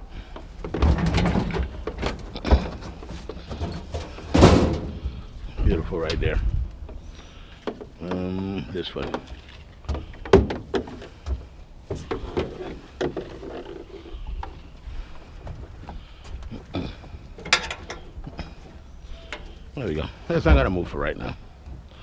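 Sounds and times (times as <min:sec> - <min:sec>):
scrap items knocking and rattling: 0:00.6 - 0:05.2.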